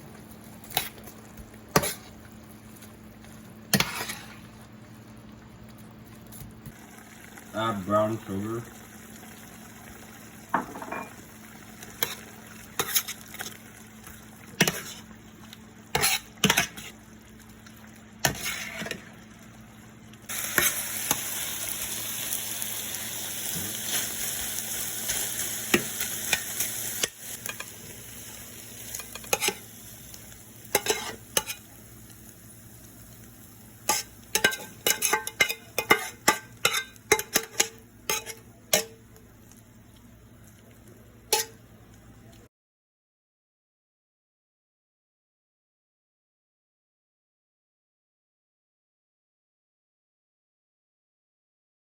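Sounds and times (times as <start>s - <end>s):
spoon scraping in cooking pot: 3.7s - 4.4s, 12.0s - 13.2s, 14.6s - 15.1s, 16.0s - 17.0s, 18.2s - 19.1s, 29.0s - 29.6s, 30.8s - 31.6s, 33.9s - 39.0s, 41.3s - 41.6s
sizzling hiss: 20.3s - 41.9s.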